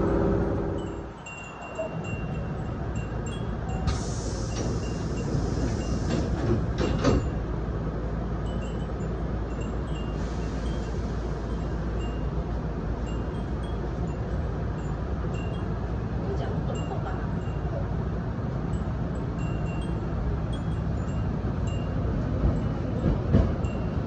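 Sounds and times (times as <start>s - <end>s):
rumble of moving train: 0.0s - 24.0s
wind chimes tinkling: 0.8s - 3.9s, 8.4s - 16.0s, 18.7s - 23.0s, 23.6s - 24.0s
loud hiss: 3.8s - 6.4s.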